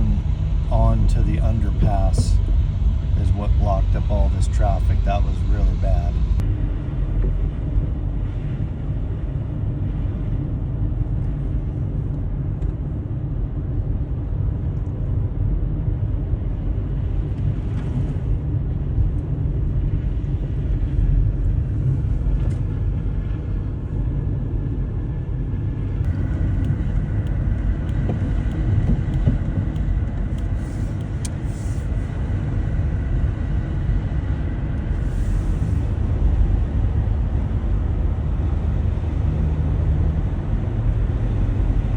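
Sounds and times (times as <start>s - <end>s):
faint high whine: 0.0s - 10.0s
car driving rumble: 0.0s - 41.9s.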